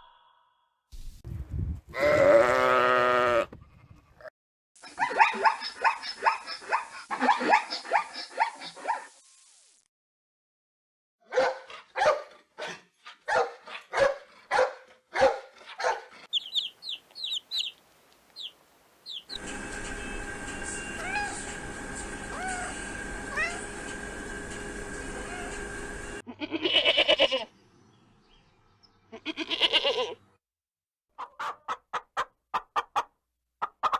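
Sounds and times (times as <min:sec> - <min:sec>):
short loud animal calls: 0:01.9 - 0:04.2.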